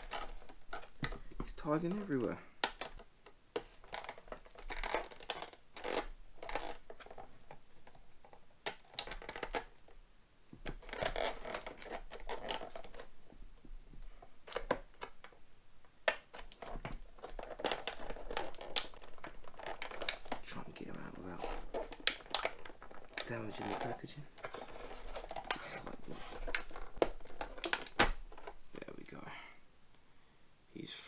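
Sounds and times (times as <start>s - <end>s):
plastic packaging crinkling: 0.0s - 10.0s, 10.6s - 13.2s, 16.1s - 29.0s.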